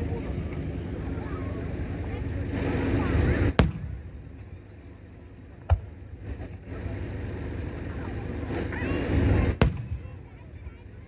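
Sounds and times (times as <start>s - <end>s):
low rumble: 0.0s - 10.8s
firework shells bursting: 3.6s - 4.4s, 9.5s - 10.2s.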